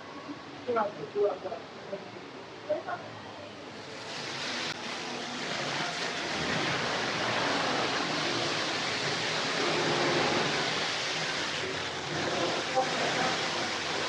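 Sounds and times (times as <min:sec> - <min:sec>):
indoor waterfall rushing: 0:04.0 - 0:14.0.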